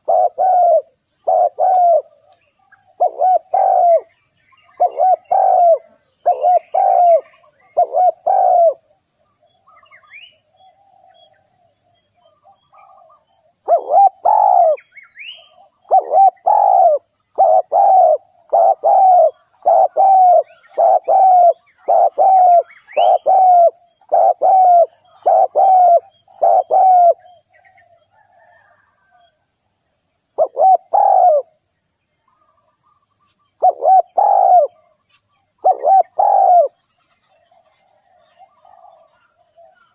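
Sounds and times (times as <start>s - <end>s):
doves cooing: 0.0s - 2.3s, 2.9s - 4.1s, 4.7s - 8.8s, 12.4s - 14.8s, 15.4s - 29.4s, 30.4s - 31.6s, 33.6s - 35.0s, 35.6s - 36.8s, 37.4s - 39.9s
small birds chirping: 0.0s - 29.3s, 32.2s - 39.9s.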